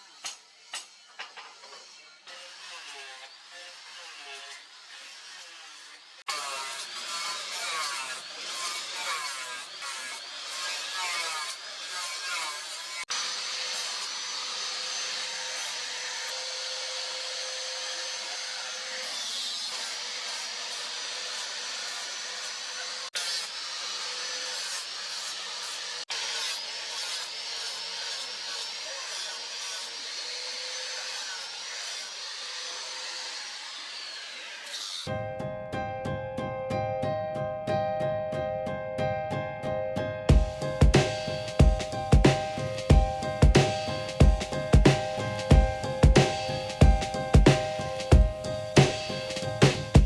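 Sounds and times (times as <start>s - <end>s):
electric grinder running: 0.0s - 35.1s
piano music: 35.1s - 50.0s.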